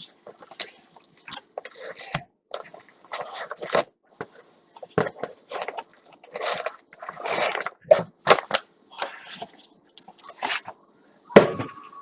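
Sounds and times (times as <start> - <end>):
packaging rustling and crinkling: 0.2 - 10.8.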